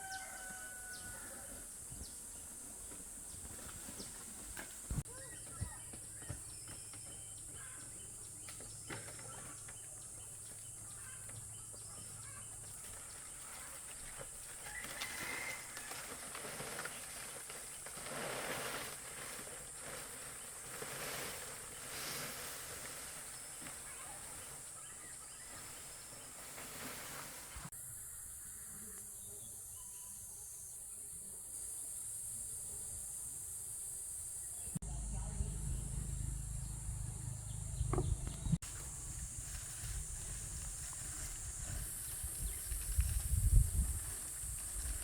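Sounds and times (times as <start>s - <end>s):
rustling and handling noise: 12.0s - 27.7s.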